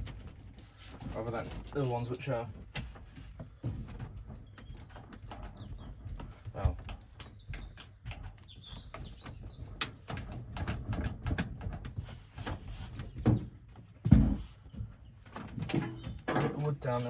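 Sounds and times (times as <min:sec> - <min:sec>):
knocks and bumps of handling: 0:00.0 - 0:17.0
bird chirping: 0:04.3 - 0:11.2, 0:14.6 - 0:17.0.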